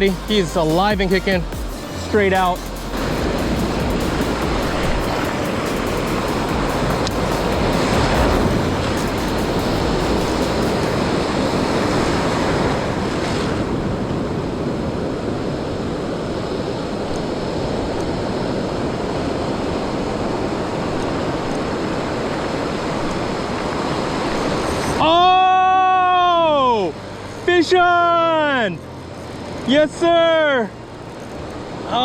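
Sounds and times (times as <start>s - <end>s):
ocean surf rushing: 0.0s - 32.0s.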